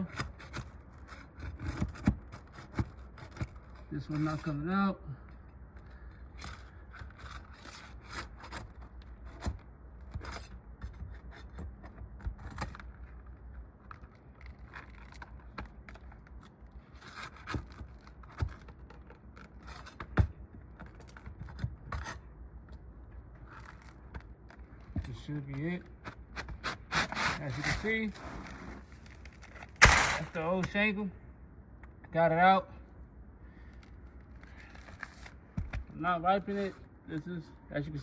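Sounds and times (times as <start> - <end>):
metal tool prying and scraping: 20.8 - 22.3, 26.3 - 30.6
sharp knock: 29.8 - 30.4.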